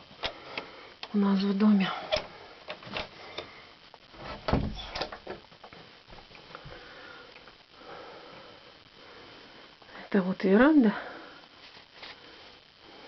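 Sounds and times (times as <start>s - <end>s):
door thump: 4.2s - 5.2s.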